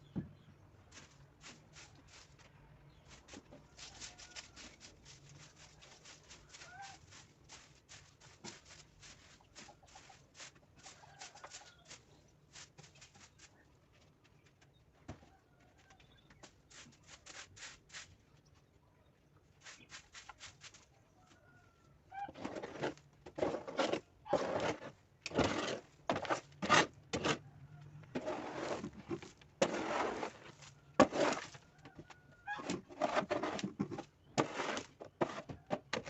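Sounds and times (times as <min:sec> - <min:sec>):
broom sweeping: 0:00.9 - 0:13.4, 0:16.7 - 0:18.2, 0:29.6 - 0:31.6
hen clucking: 0:06.4 - 0:07.2.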